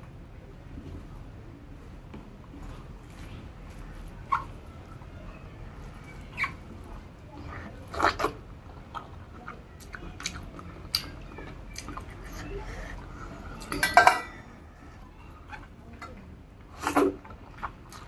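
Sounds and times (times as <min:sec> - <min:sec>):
person chewing food: 0:05.8 - 0:13.7, 0:16.7 - 0:18.0.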